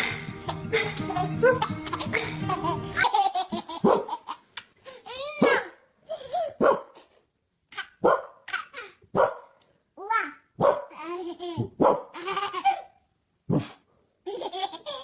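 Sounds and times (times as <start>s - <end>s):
background music: 0.0s - 3.2s
baby giggling: 0.0s - 7.1s, 11.0s - 13.0s, 14.2s - 15.0s
dog yipping and barking: 3.8s - 4.2s, 5.4s - 5.8s, 6.6s - 6.9s, 8.0s - 8.4s, 9.2s - 9.4s, 10.6s - 10.9s, 11.8s - 12.1s.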